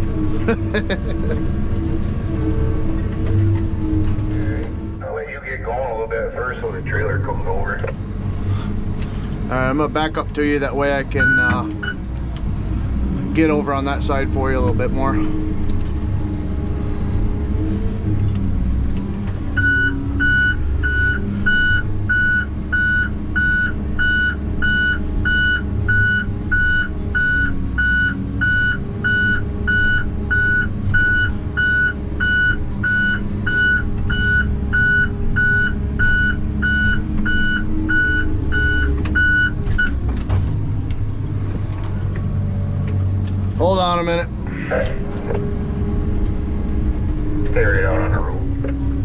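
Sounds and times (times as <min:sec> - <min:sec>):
heavy vehicle engine running: 0:00.0 - 0:49.0
vehicle back-up alarm beeping: 0:11.1 - 0:12.0, 0:19.6 - 0:40.0.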